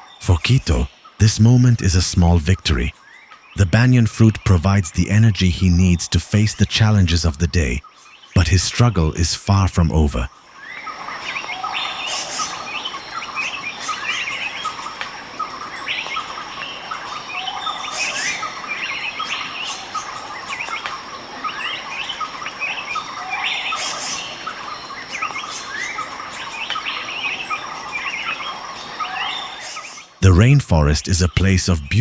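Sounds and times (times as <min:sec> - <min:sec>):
birds chirping and calling: 0:15.6 - 0:30.1.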